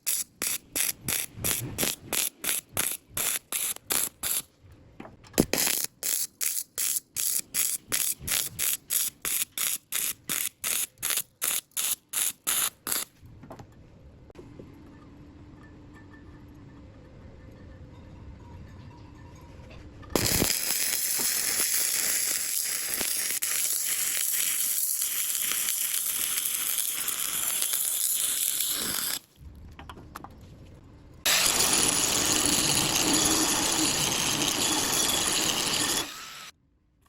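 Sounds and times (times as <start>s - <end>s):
welding arc crackling: 0.0s - 4.4s, 5.4s - 13.1s, 20.2s - 29.3s, 31.3s - 36.5s.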